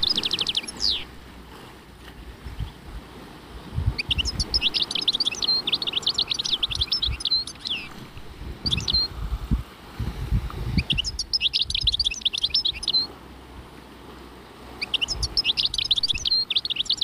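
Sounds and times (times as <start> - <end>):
songbird twittering: 0.0 - 1.2, 3.9 - 9.2, 10.7 - 13.2, 14.2 - 17.0.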